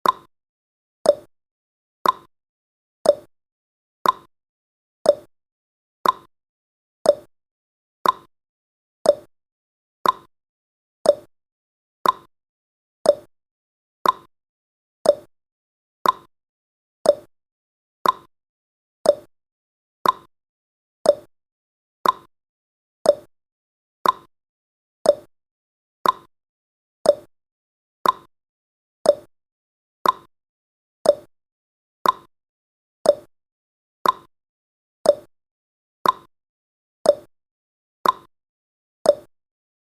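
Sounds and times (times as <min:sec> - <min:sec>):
clock ticking: 0:02.0 - 0:02.3, 0:04.0 - 0:04.3, 0:06.0 - 0:06.3, 0:08.0 - 0:08.3, 0:10.0 - 0:10.3, 0:12.0 - 0:12.3, 0:14.0 - 0:14.3, 0:15.1 - 0:15.3, 0:16.0 - 0:16.3, 0:17.1 - 0:17.3, 0:18.0 - 0:18.3, 0:19.1 - 0:19.3, 0:20.0 - 0:20.3, 0:21.1 - 0:21.3, 0:22.0 - 0:22.3, 0:24.0 - 0:24.3, 0:26.0 - 0:26.3, 0:28.0 - 0:28.3, 0:29.1 - 0:29.3, 0:30.0 - 0:30.3, 0:31.1 - 0:31.3, 0:32.0 - 0:32.3, 0:33.1 - 0:33.3, 0:34.0 - 0:34.3, 0:35.1 - 0:35.3, 0:36.0 - 0:36.3, 0:38.0 - 0:38.3, 0:39.1 - 0:39.3.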